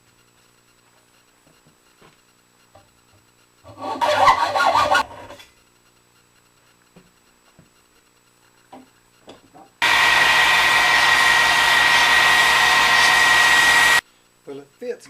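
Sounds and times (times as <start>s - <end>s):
scraping rub: 3.7s - 5.4s.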